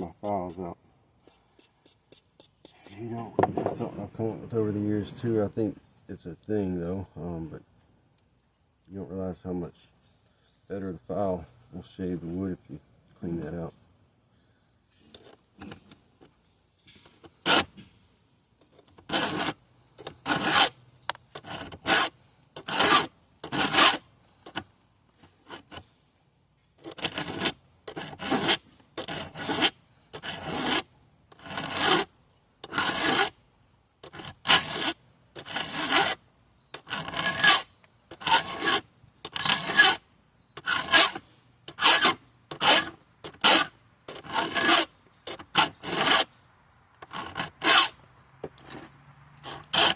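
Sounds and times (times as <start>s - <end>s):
hand file rasping on chain: 19.0s - 20.7s, 21.4s - 24.6s, 26.8s - 33.3s, 34.0s - 40.0s, 40.6s - 46.3s, 47.0s - 48.0s, 49.4s - 49.9s.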